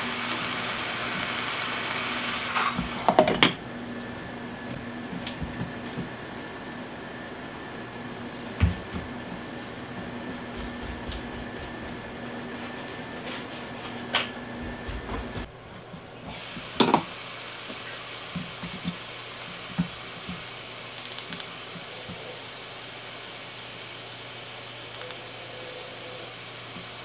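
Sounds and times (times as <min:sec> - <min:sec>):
meat sizzling in a frying pan: 0:00.0 - 0:03.5, 0:16.3 - 0:27.0.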